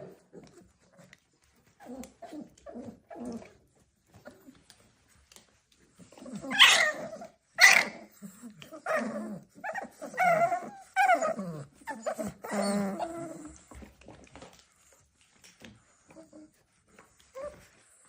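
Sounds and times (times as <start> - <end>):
dog whining: 0.0 - 4.6, 6.0 - 13.9.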